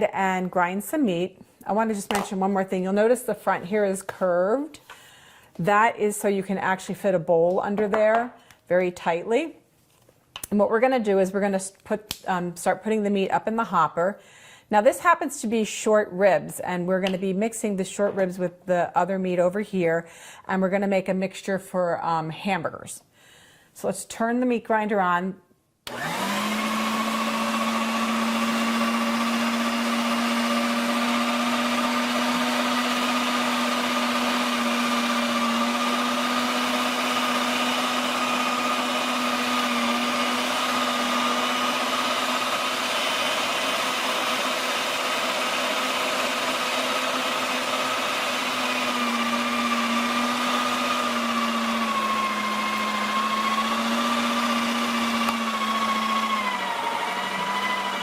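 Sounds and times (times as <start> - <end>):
electric meat grinder humming: 25.9 - 58.0.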